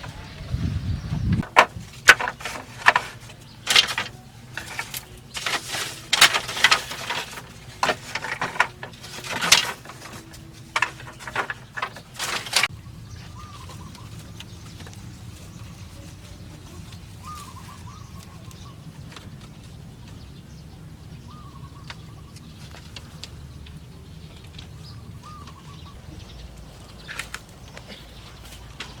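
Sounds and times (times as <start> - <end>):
knocks and scraping: 0.0 - 20.3, 21.8 - 29.0
faint bird chirps: 12.7 - 28.7.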